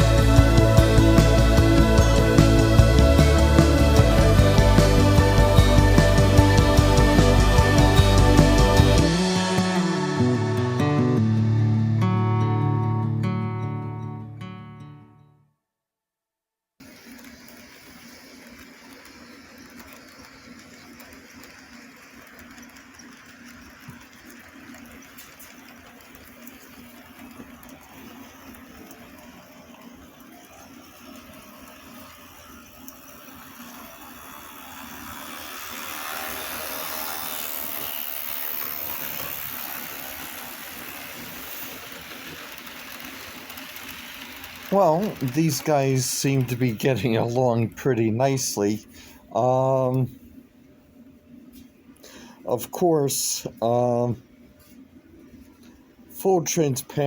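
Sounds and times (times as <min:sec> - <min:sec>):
model train motor humming: 0:00.0 - 0:11.4, 0:16.8 - 0:50.1.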